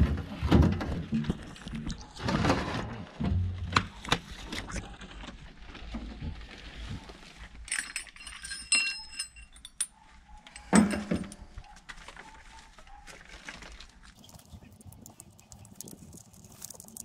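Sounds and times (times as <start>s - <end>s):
metal engine parts clinking: 7.6s - 11.5s.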